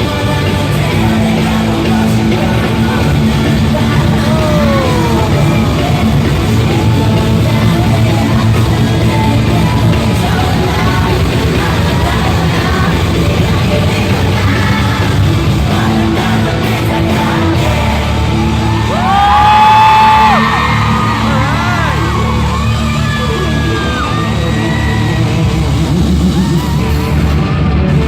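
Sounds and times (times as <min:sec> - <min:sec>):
live rock music: 0:00.0 - 0:28.0
person singing and yelling: 0:00.4 - 0:19.5.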